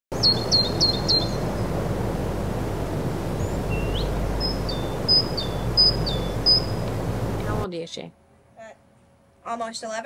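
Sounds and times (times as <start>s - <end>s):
low rumble and hiss: 0.1s - 10.0s
small bird chirping: 0.2s - 1.7s, 3.3s - 7.6s.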